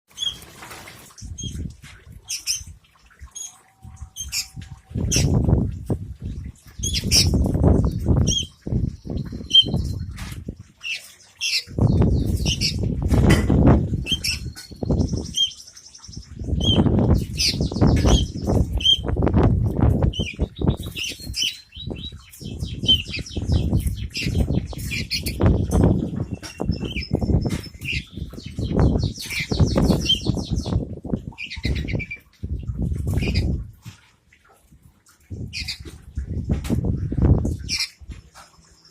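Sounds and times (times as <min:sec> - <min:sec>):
wing flapping: 0:00.1 - 0:01.7
bird chirping and chattering: 0:01.1 - 0:05.5, 0:06.4 - 0:19.2, 0:19.9 - 0:33.6, 0:35.4 - 0:36.4, 0:37.2 - 0:38.9.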